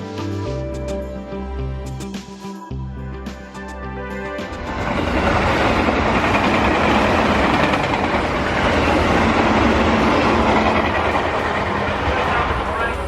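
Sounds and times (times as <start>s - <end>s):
train cars rumbling: 4.5s - 13.0s.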